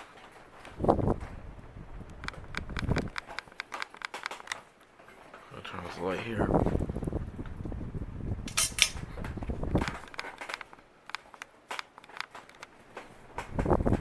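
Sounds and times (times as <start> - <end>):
ceiling fan running: 0.0 - 14.0
sharp clicks and ticks: 2.1 - 4.6.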